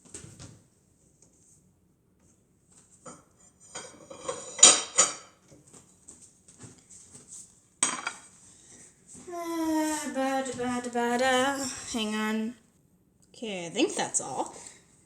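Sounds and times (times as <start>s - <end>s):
dishes and utensils clattering: 3.1s - 5.4s, 7.8s - 8.3s.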